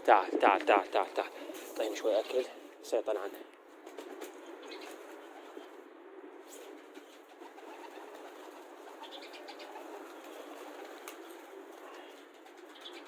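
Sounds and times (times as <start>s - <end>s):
pigeons cooing: 0.0s - 13.0s
pigeons shuffling: 6.4s - 13.0s.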